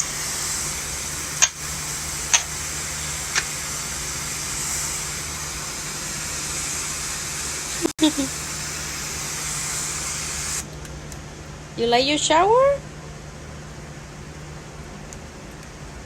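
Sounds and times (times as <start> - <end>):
shower water spraying: 0.0 - 10.8.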